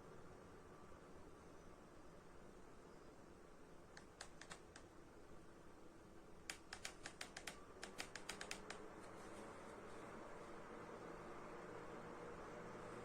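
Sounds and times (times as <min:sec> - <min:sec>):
quiet hiss: 0:00.0 - 0:13.0
faint quick light clicks: 0:03.9 - 0:05.0, 0:06.4 - 0:09.2.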